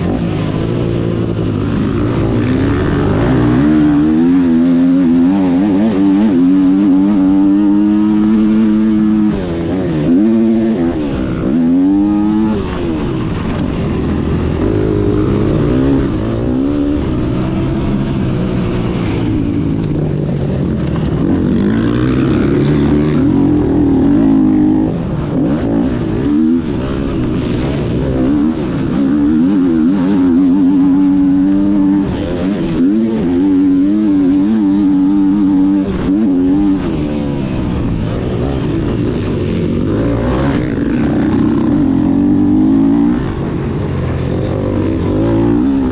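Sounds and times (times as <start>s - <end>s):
motocross bike engine revving: 0.0s - 45.9s.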